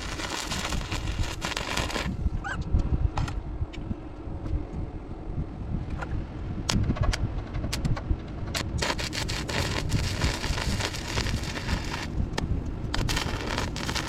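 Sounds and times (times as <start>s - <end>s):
welding arc crackling: 0.0s - 2.2s, 8.5s - 14.0s
low rumble: 0.0s - 14.0s.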